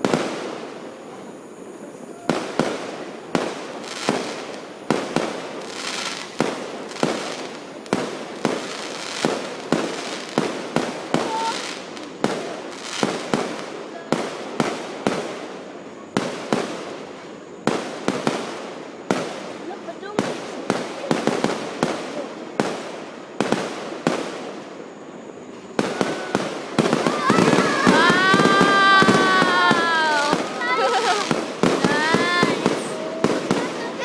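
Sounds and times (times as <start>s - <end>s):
fireworks hissing trails: 0.0s - 34.0s
fireworks banging: 16.2s - 24.6s, 25.5s - 34.0s.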